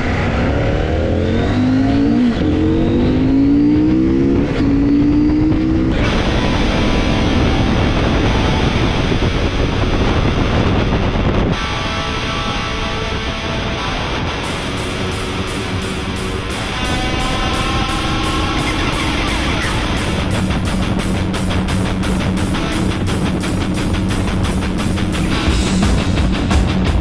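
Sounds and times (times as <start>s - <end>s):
motorcycle engine accelerating: 0.0s - 26.9s
wind rushing: 13.2s - 25.1s.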